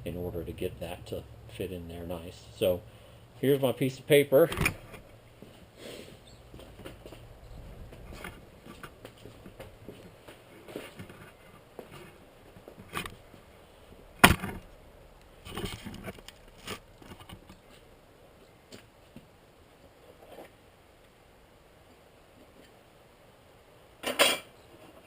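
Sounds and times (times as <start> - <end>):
scraping and rustling: 4.4 - 13.5, 15.4 - 17.9.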